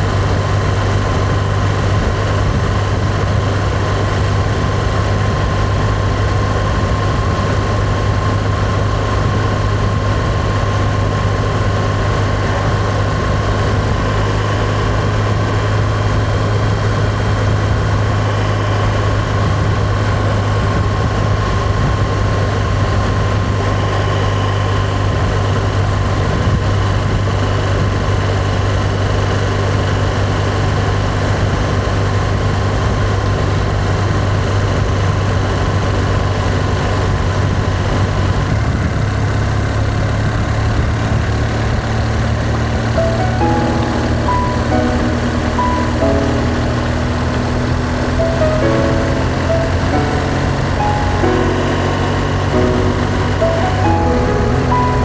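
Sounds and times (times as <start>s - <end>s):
road noise: 42.0s - 55.0s.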